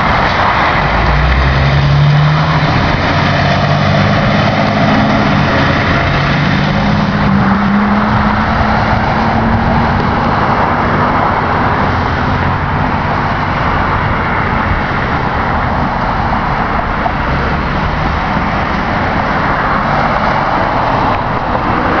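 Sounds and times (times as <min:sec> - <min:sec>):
fire engine accelerating: 0:00.0 - 0:22.0
road and traffic noise: 0:00.0 - 0:22.0.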